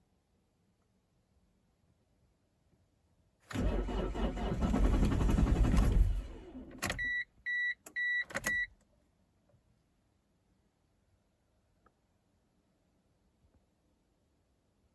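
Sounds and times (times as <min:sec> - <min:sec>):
diesel engine cranking on starter: 0:03.5 - 0:07.1.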